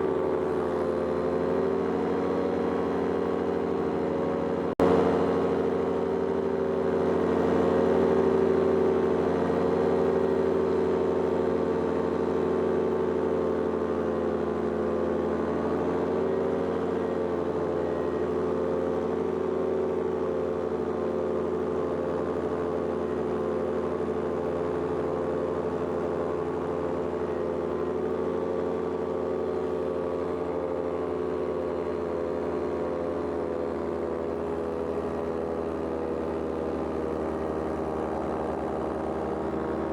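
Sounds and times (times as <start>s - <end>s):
paraglider engine and propeller: 0.0s - 39.9s.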